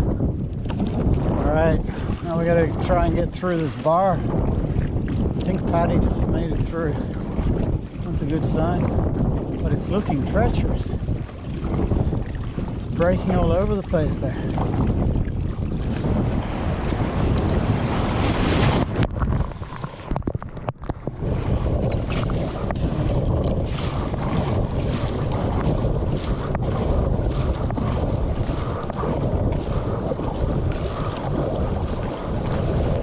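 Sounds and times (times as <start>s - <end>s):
water washing around kayak: 0.0s - 33.0s
wind buffeting microphone: 0.0s - 33.0s
breaking surf: 15.9s - 25.4s.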